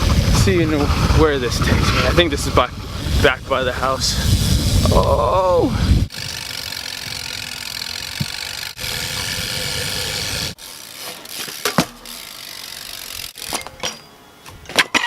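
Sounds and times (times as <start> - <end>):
wind on microphone: 0.0 - 10.6
bike clicks and knocks: 6.2 - 15.0
tyres rolling on pavement: 6.7 - 12.4.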